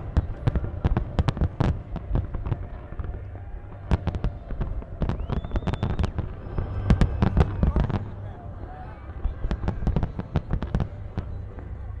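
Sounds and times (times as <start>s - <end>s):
fireworks bangs and crackles: 0.0s - 12.0s
low rumble: 0.0s - 12.0s
firework whistle: 3.9s - 8.4s.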